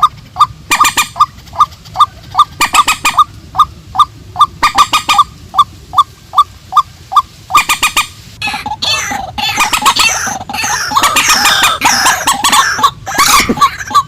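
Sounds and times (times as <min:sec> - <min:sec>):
repeated kook bird call: 0:00.0 - 0:14.0
harsh screeching bird calls: 0:07.5 - 0:14.0.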